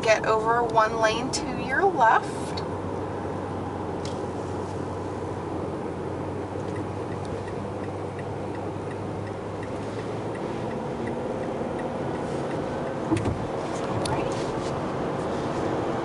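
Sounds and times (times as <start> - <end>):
road and engine noise: 0.0 - 16.0
turn signal ticking: 6.4 - 14.4.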